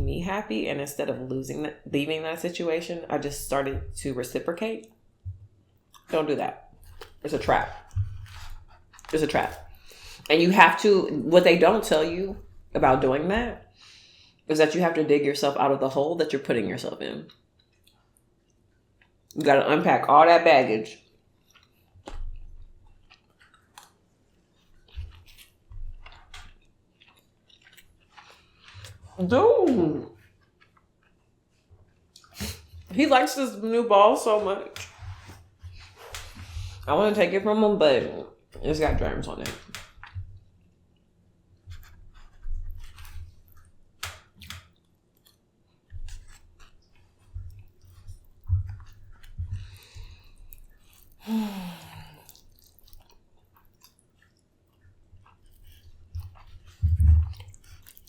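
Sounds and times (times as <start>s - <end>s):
person chewing food: 6.7s - 10.4s, 17.3s - 19.4s, 21.3s - 29.2s, 30.2s - 32.9s, 39.8s - 58.0s
wet mouth clicks and smacks: 46.0s - 58.0s
dull low thumps: 56.8s - 57.4s.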